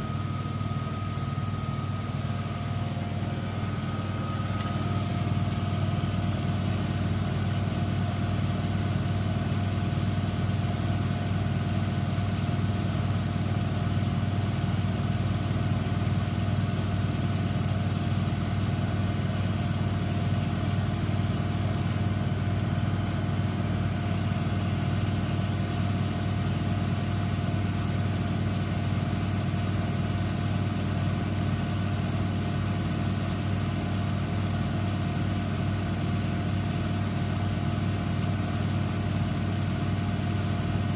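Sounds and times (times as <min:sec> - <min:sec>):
washing machine motor hum: 0:00.0 - 0:09.5.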